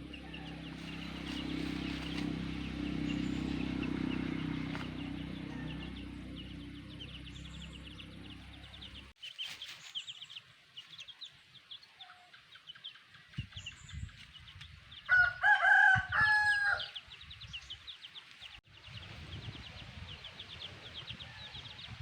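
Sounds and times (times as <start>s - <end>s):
rooster crowing: 4.9s - 6.5s, 15.1s - 17.0s.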